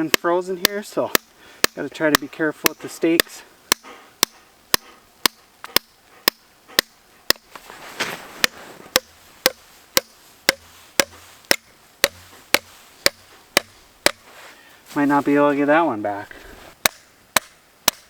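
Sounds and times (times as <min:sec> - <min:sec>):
tent stake hammered into gravel: 0:00.0 - 0:02.3, 0:03.2 - 0:14.4, 0:16.8 - 0:18.0.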